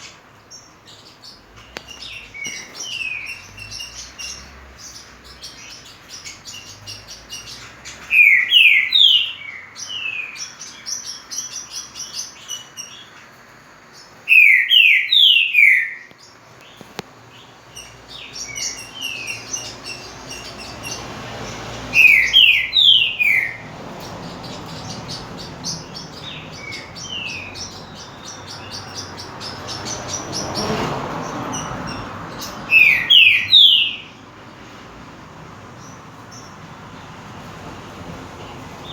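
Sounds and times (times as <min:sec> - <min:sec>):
small birds twittering: 0:00.0 - 0:38.9
bird whistled song phrases: 0:08.1 - 0:10.4, 0:14.3 - 0:16.1, 0:22.0 - 0:23.6, 0:32.7 - 0:34.1.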